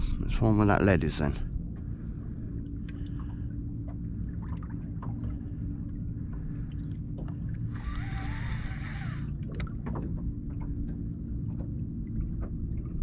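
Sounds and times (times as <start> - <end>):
wind and water around boat: 0.0 - 13.0
rasping squeal: 7.8 - 9.3.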